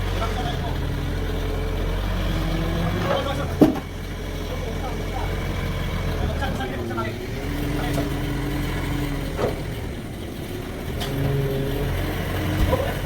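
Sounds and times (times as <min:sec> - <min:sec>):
sawmill engine running: 0:00.0 - 0:13.0.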